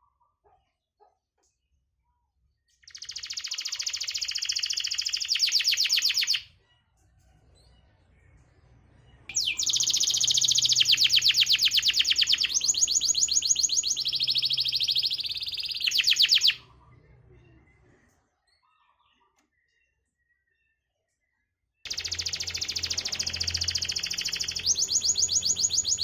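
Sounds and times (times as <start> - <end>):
canary trilling: 2.8 - 6.5, 9.3 - 16.9, 21.9 - 26.0.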